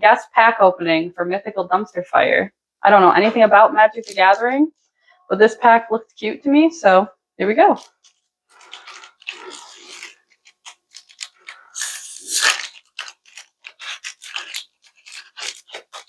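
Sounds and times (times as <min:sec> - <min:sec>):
foil wrapper ripping: 0:04.0 - 0:04.5, 0:07.8 - 0:16.0
foil wrapper crinkling: 0:04.0 - 0:04.6, 0:07.8 - 0:16.0.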